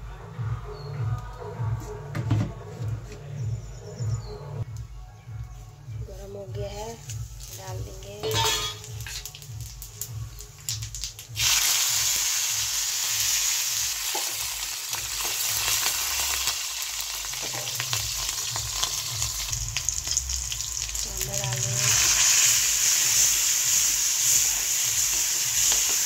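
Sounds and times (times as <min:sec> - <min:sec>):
vegetables sizzling in oil: 0:07.0 - 0:26.0.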